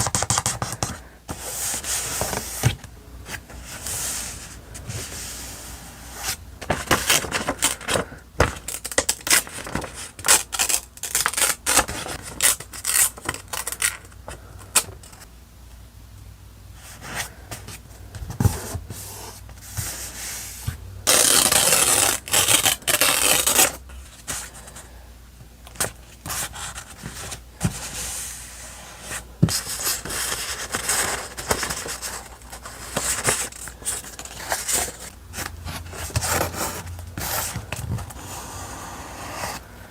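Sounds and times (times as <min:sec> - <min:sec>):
paper and stickers rustling: 0:00.0 - 0:15.2, 0:29.0 - 0:39.6.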